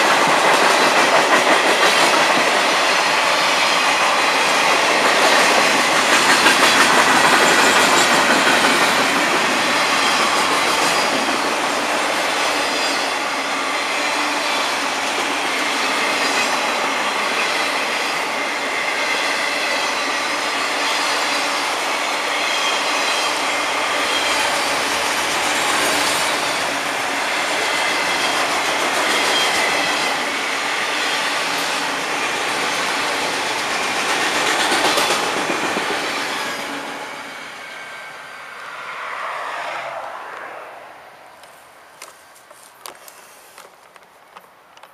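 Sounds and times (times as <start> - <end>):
freight cars rumbling on rails: 0.0 - 42.1
high wheel squealing: 5.2 - 40.8.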